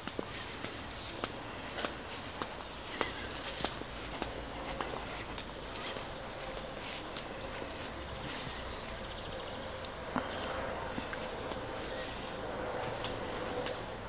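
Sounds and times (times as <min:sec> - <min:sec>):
small songbird chirping: 0:00.3 - 0:14.0.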